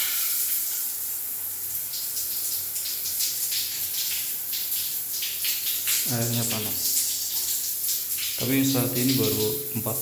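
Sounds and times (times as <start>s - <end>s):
water running from a tap: 0.0s - 10.0s.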